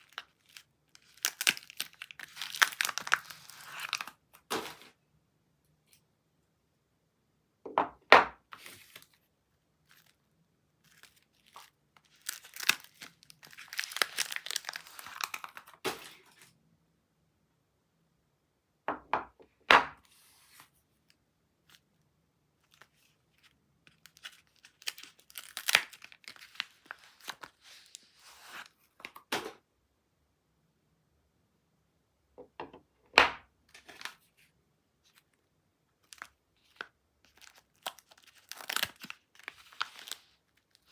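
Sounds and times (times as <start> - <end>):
wrapper tearing and crinkling: 0.0 - 4.9, 10.8 - 16.4, 22.7 - 28.7, 36.0 - 40.9.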